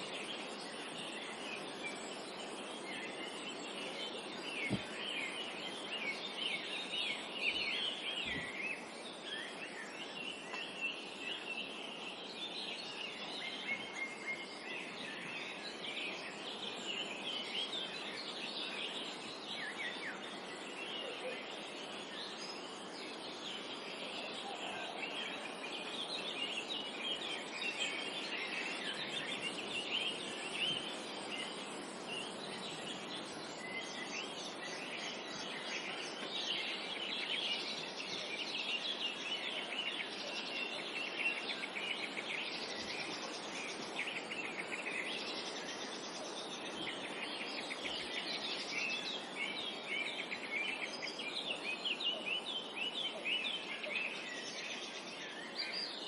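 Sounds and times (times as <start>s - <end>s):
forest ambience hiss: 0.0s - 56.0s
songbirds chirping and singing: 0.0s - 56.0s.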